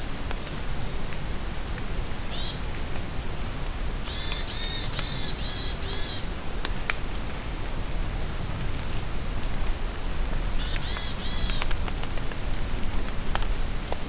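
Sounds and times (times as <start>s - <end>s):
steady rain: 0.0s - 14.0s
bird calling: 2.3s - 2.9s, 3.9s - 6.3s, 10.6s - 11.7s
sharp drip clicks: 10.6s - 12.4s.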